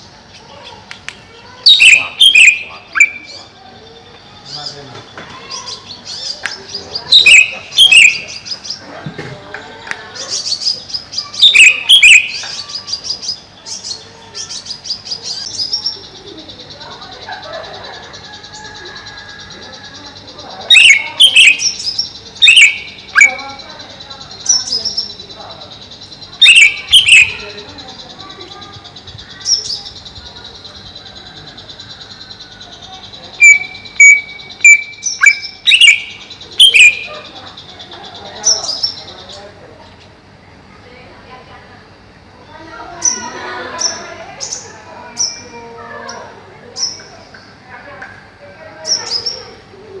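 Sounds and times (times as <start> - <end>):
bird singing: 0.0 - 50.0
bird gliding whistles: 1.6 - 4.0, 5.5 - 8.6, 10.3 - 16.5, 20.7 - 23.6, 26.4 - 27.7, 31.6 - 37.5.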